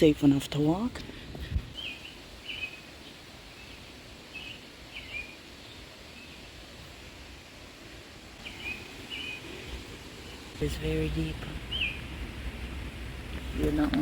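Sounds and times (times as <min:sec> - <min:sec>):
outdoor background hiss: 0:00.0 - 0:14.0
bird chirping: 0:01.7 - 0:06.6, 0:08.4 - 0:12.3.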